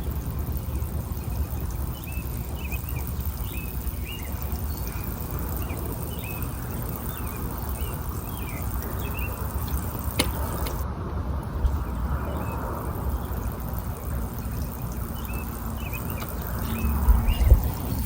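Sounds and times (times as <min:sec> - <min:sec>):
bird chirping: 0:00.0 - 0:10.8, 0:11.4 - 0:18.0
steady low rumble: 0:00.0 - 0:18.0
sharp click: 0:02.1 - 0:10.8.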